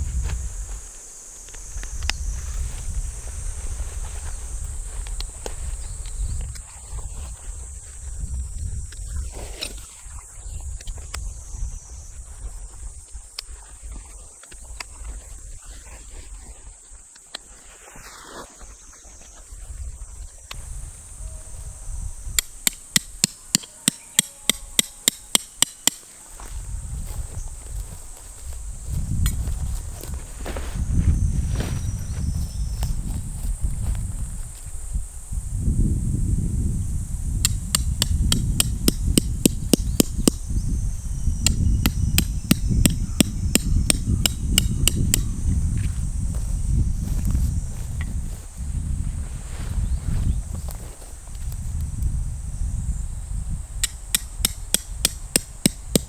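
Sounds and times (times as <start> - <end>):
insects trilling: 0.0 - 56.0
hammer blows on metal stake: 22.3 - 27.2, 37.4 - 40.6, 41.2 - 45.5, 53.8 - 56.0.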